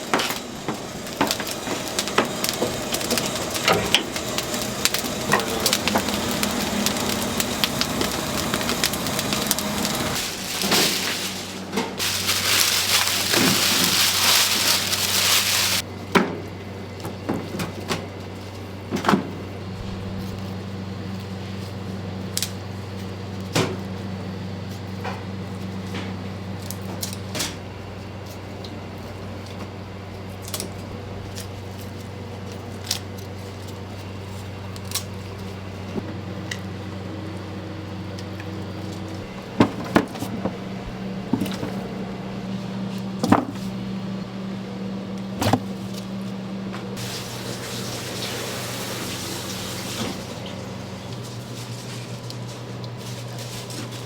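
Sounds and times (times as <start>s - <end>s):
low machine hum: 0.0s - 54.0s
hiss: 47.0s - 50.2s.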